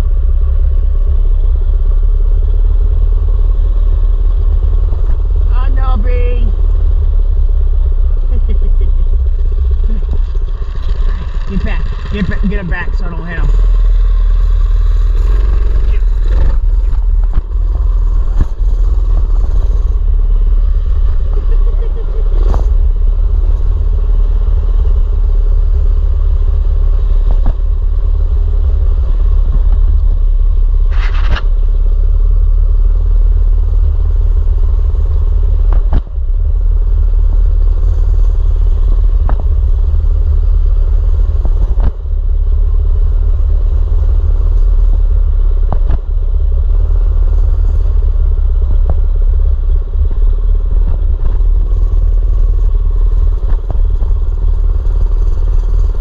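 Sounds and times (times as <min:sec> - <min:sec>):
wind rumble on microphone: 0:00.0 - 0:56.0
mini bike engine running: 0:08.3 - 0:29.9.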